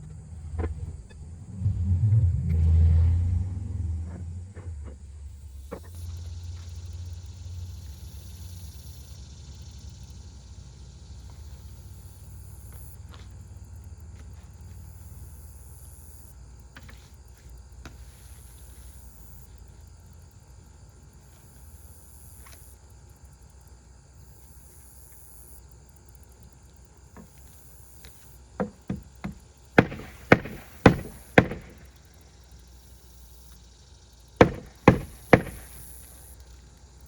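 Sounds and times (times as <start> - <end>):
hammer hitting nail: 28.6 - 31.9, 34.4 - 35.8.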